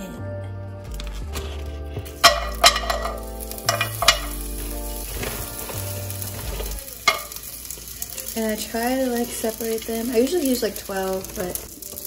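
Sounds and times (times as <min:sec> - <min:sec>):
steady frying hiss: 0:01.4 - 0:12.0
dumplings sizzling into hot oil: 0:02.1 - 0:12.0.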